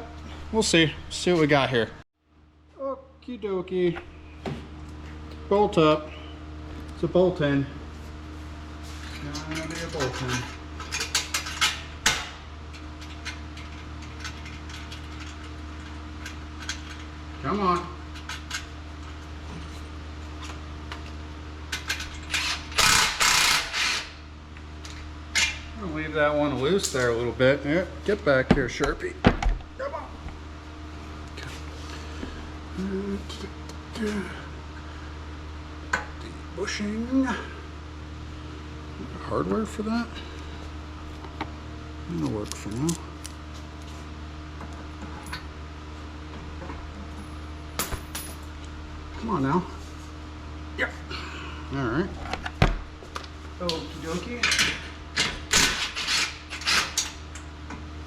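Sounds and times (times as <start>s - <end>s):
shop hum: 0.0s - 58.0s
ratchet wrench clicking: 21.8s - 24.1s.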